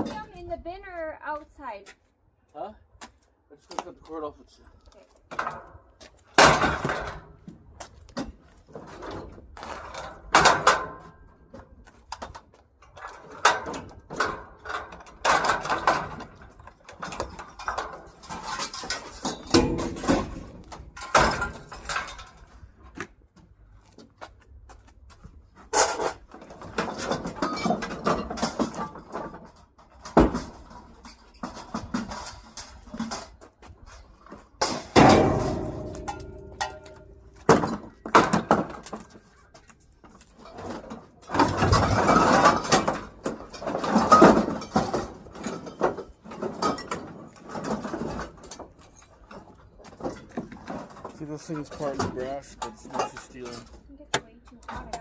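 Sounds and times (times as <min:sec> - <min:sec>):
scrap metal clanking: 0:12.9 - 0:22.7, 0:25.6 - 0:53.9.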